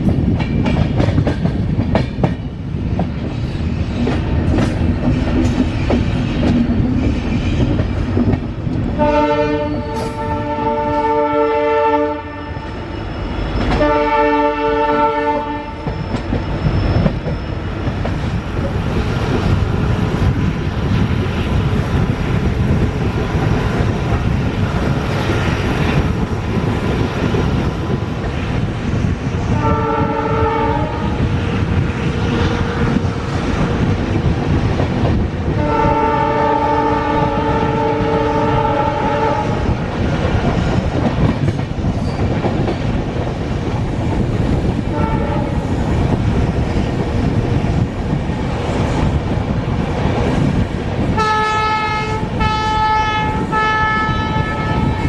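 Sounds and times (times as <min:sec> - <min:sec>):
train wheels rumbling on track: 0:00.0 - 0:55.0
locomotive horn: 0:09.0 - 0:12.8, 0:13.7 - 0:15.9, 0:29.6 - 0:31.2, 0:35.6 - 0:39.7, 0:44.9 - 0:45.6, 0:51.2 - 0:55.0.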